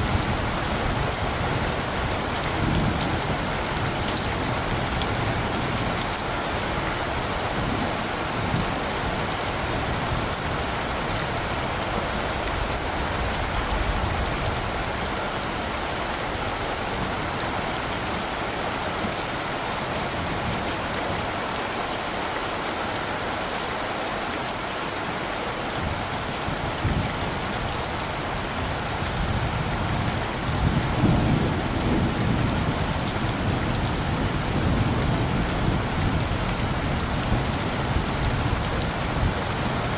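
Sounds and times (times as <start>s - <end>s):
rain drops ticking: 0.0s - 39.9s
distant thunder rumble: 25.8s - 39.7s.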